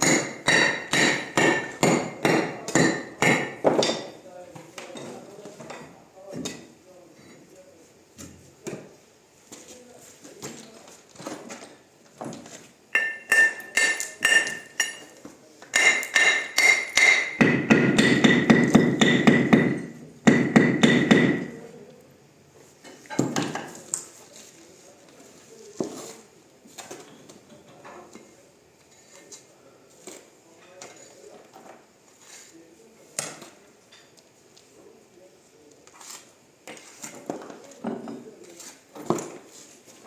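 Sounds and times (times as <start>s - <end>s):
hammer blows with metallic ring: 13.0s - 15.1s, 15.8s - 21.6s.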